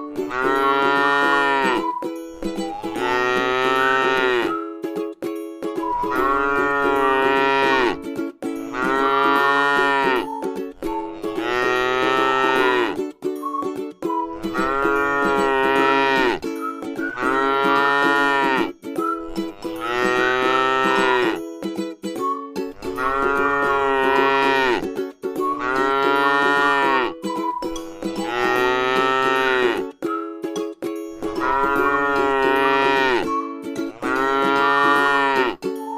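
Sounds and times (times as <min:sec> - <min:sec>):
cow mooing: 0:00.3 - 0:01.8, 0:02.9 - 0:04.5, 0:06.1 - 0:08.0, 0:08.7 - 0:10.3, 0:11.1 - 0:13.0, 0:14.5 - 0:16.4, 0:17.2 - 0:18.7, 0:19.5 - 0:21.4, 0:22.9 - 0:24.8, 0:25.6 - 0:27.1, 0:28.0 - 0:29.8, 0:31.3 - 0:33.3, 0:33.9 - 0:35.6.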